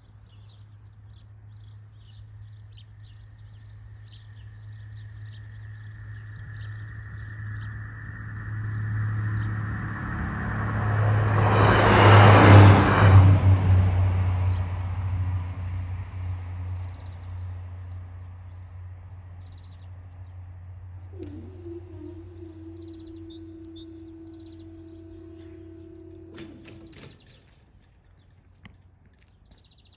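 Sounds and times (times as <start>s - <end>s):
faint birds chirping: 0.0s - 9.7s, 16.3s - 29.9s
train passing: 6.6s - 18.4s, 20.8s - 27.8s.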